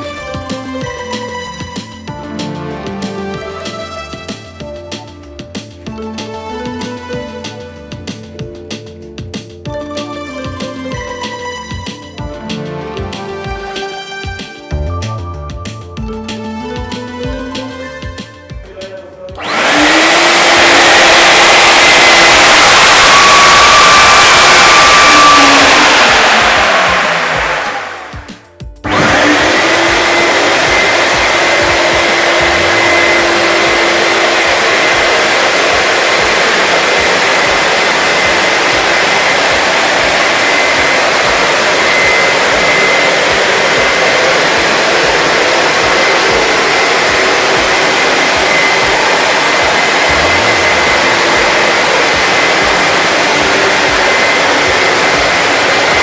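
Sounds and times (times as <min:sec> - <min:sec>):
industrial vacuum motor running: 0:19.4 - 0:56.0.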